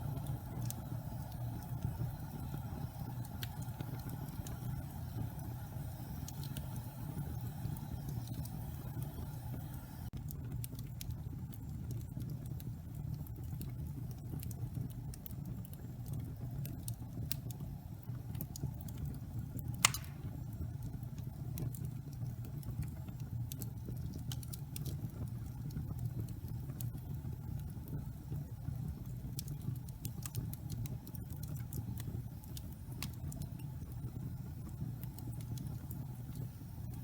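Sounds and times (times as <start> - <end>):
fire crackling: 0.0 - 37.0
fire rumbling: 0.0 - 37.0
sharp pop of burning log: 19.8 - 20.4.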